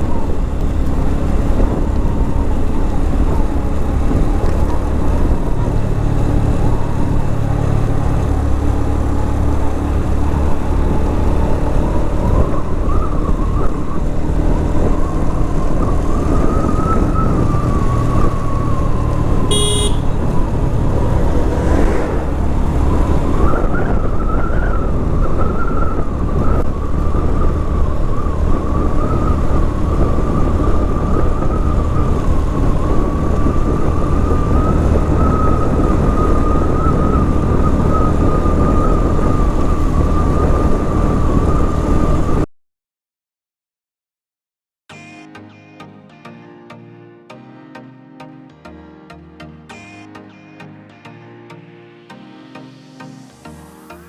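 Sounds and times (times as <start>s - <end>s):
wind noise: 0.0s - 42.5s
motorcycle engine running: 14.3s - 25.2s
short beep: 19.5s - 20.2s.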